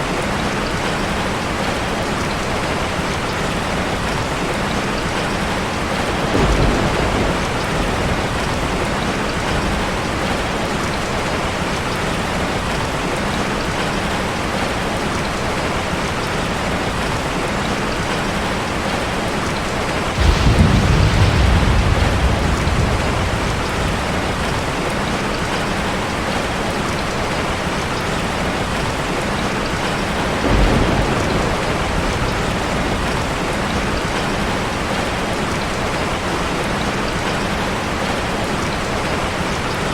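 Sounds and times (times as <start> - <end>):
heavy rain falling on a car: 0.0 - 39.9
rolls of thunder: 6.2 - 10.5, 20.1 - 25.6, 30.3 - 34.2.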